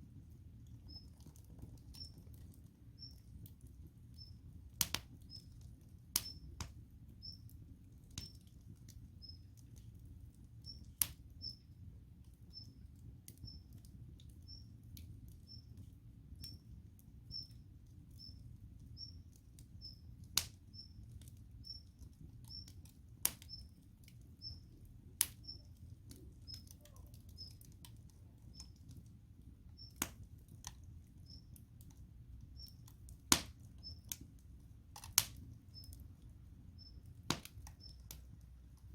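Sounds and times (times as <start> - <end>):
campfire crackling and popping: 0.0 - 38.9
faint high chirp: 0.8 - 1.2, 1.9 - 2.2, 3.0 - 3.3, 4.1 - 4.4, 5.2 - 5.6, 6.2 - 6.5, 7.2 - 7.5, 9.2 - 9.5, 10.6 - 11.7, 12.5 - 13.8, 14.4 - 14.7, 15.4 - 15.8, 17.3 - 19.2, 19.8 - 20.1, 20.7 - 21.0, 21.6 - 22.8, 24.4 - 24.8, 25.4 - 27.6, 29.8 - 30.0, 31.2 - 31.5, 32.5 - 32.8, 33.8 - 34.1, 35.7 - 36.0, 36.7 - 37.1, 37.8 - 38.0.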